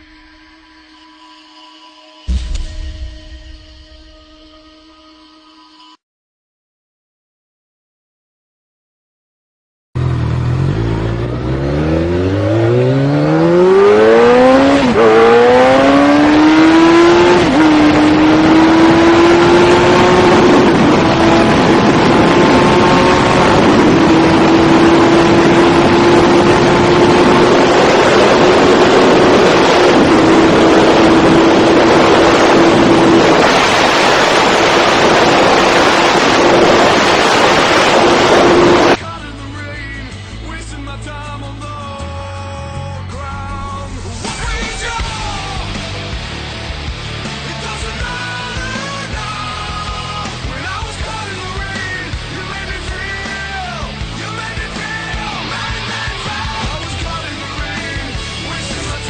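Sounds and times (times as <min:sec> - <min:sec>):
motorcycle engine revving high: 0:10.0 - 0:39.0
rushing wind noise: 0:11.8 - 0:39.0.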